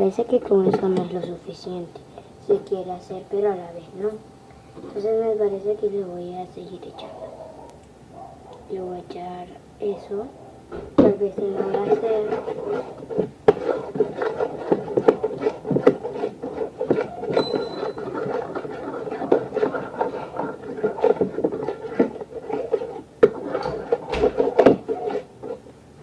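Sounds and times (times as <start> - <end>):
steady rubbing sound: 10.0 - 25.7
spoon scraping slime: 11.0 - 25.7.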